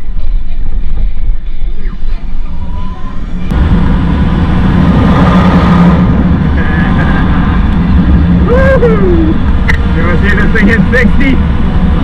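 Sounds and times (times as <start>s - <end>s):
electric dirt bike at speed: 3.4s - 8.5s.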